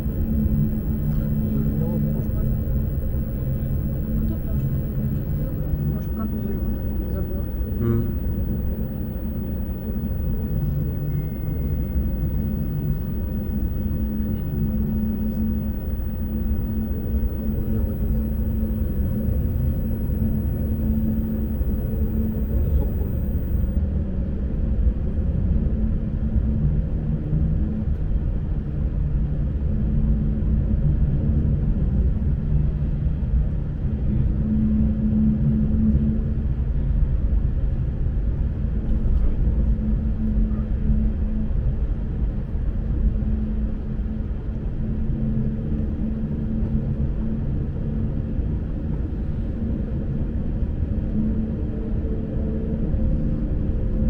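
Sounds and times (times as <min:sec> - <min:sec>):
electric motor hum: 0:00.0 - 0:23.8.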